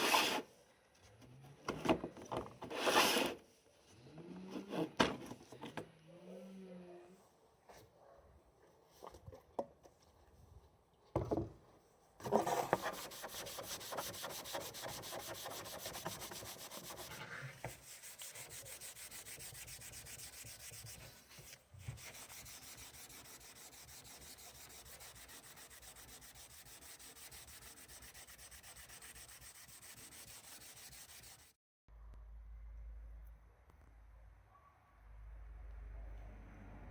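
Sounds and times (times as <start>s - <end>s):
hand sanding with sandpaper: 12.3s - 31.6s.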